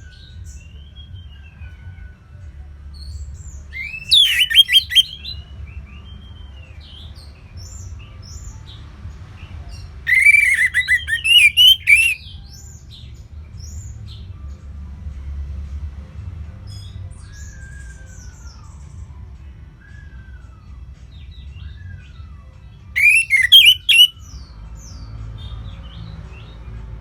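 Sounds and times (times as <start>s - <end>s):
faint bird whistles and chirps: 3.0s - 8.5s, 10.1s - 13.0s, 16.8s - 25.0s
songbirds singing: 3.0s - 14.2s, 23.0s - 26.8s.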